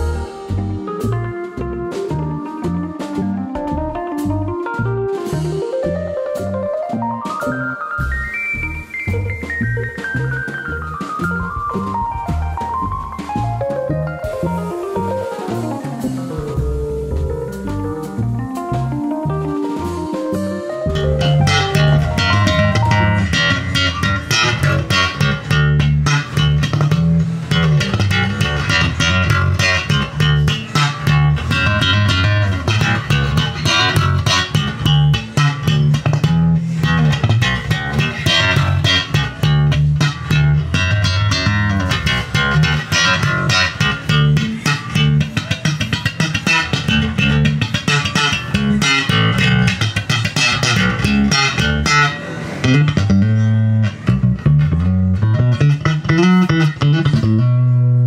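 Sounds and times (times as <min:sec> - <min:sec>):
electric bass guitar playing: 0:00.0 - 0:58.0.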